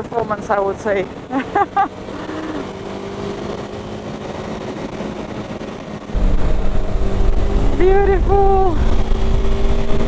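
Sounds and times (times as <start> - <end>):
motorcycle engine cruising: 0.0 - 10.0.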